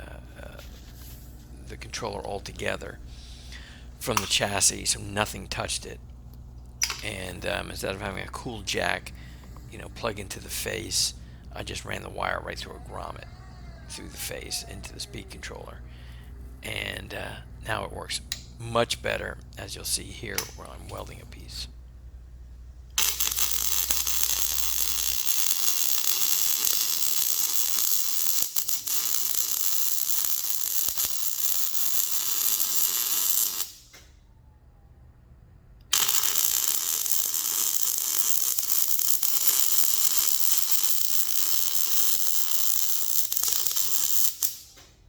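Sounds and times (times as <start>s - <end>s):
arc welding crackling hiss: 0.0s - 5.8s, 22.9s - 34.0s, 35.9s - 44.9s.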